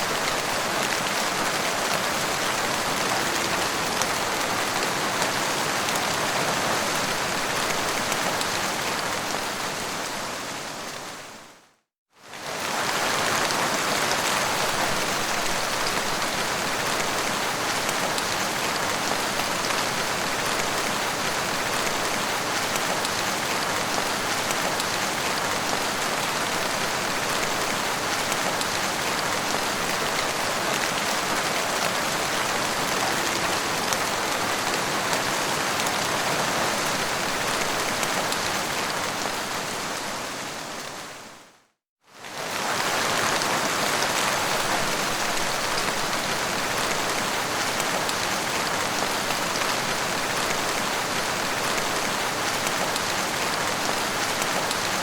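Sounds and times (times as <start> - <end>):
rain pattering: 12.3 - 41.1, 42.2 - 55.0.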